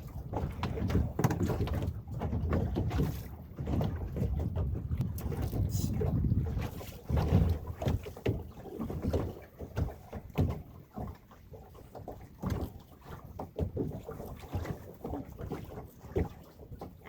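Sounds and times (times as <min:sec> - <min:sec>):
knocks and thumps on boat: 0:00.0 - 0:17.0
low wind rumble: 0:04.0 - 0:07.8.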